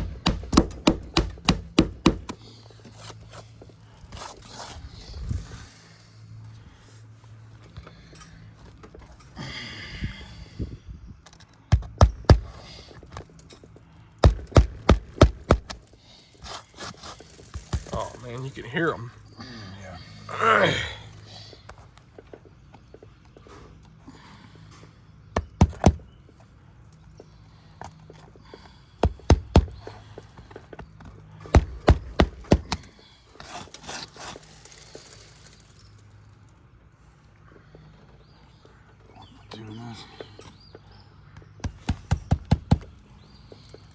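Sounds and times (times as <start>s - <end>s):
sharp knocks on shingle roof: 0.0s - 2.4s, 11.7s - 13.0s, 14.2s - 15.8s, 25.3s - 26.1s, 29.0s - 30.0s, 30.7s - 33.0s, 41.6s - 43.0s
roof shingles cracking: 14.1s - 18.6s, 31.4s - 36.2s
scraping rustle: 15.8s - 19.2s, 32.8s - 36.6s.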